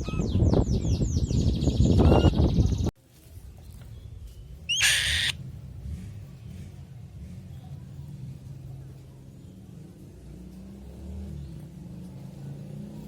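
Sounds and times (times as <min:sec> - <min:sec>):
bird calling high falling notes: 0:04.7 - 0:05.4.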